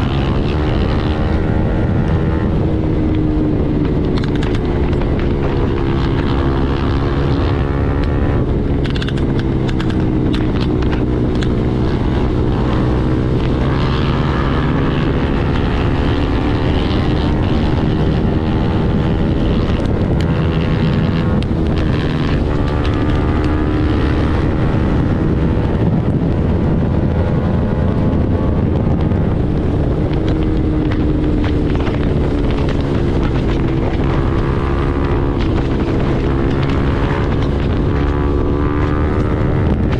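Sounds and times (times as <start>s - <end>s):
motorcycle engine at speed: 0.0s - 39.9s
wind noise on microphone: 0.0s - 39.9s.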